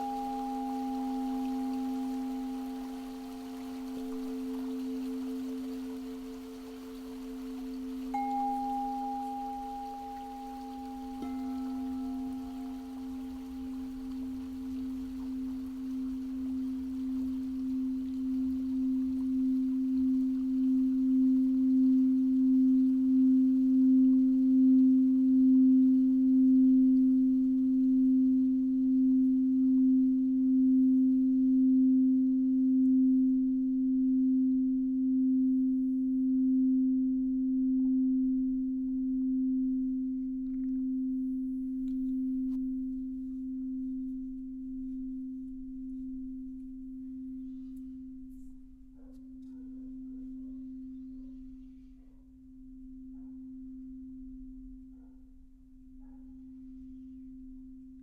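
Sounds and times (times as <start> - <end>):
pure ringing tone with wobble: 0.0 - 5.6, 8.1 - 14.7.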